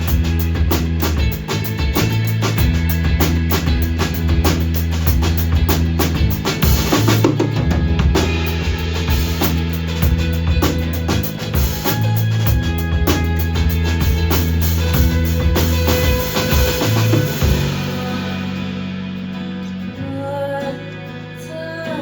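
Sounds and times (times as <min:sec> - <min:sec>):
drum kit beat: 0:00.0 - 0:18.8
low bass notes: 0:00.0 - 0:21.3
cymbals: 0:06.3 - 0:19.0.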